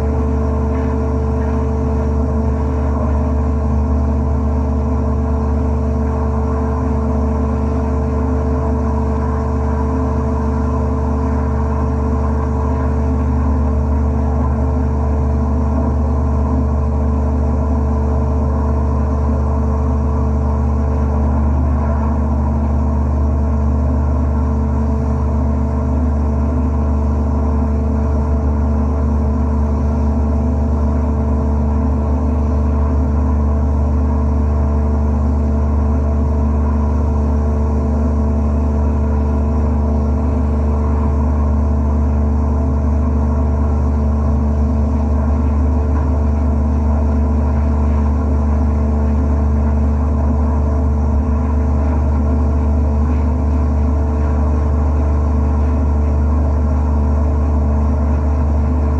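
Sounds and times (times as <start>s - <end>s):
blasting cabinet low drone: 0.0s - 58.9s.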